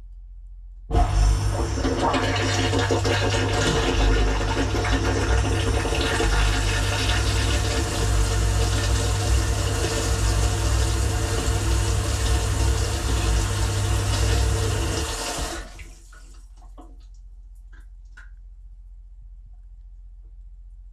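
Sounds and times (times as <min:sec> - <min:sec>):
pump humming: 0:00.9 - 0:16.1
water spraying and splashing: 0:01.1 - 0:16.0.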